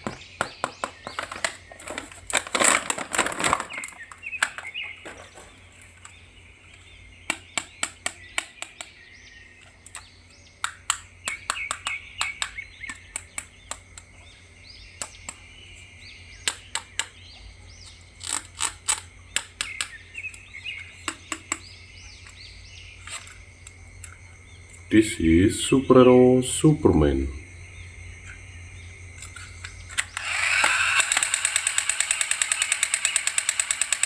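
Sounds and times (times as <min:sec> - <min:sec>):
birds chirping faintly: 0:00.0 - 0:02.6, 0:03.3 - 0:34.0
rustling crinkle: 0:01.0 - 0:06.1
plastic clicks and taps: 0:21.0 - 0:22.4.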